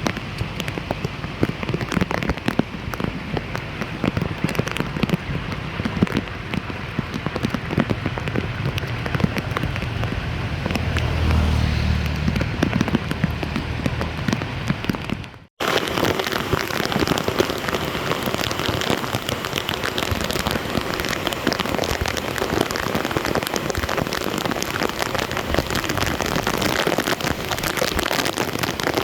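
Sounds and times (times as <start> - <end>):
rain drops hitting: 0.0 - 29.0
low rumble: 7.4 - 15.5.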